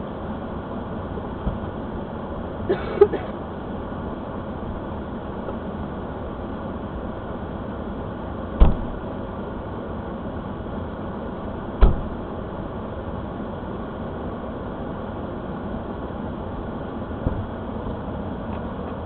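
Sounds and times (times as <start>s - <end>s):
sharp thumps: 8.6s - 9.0s.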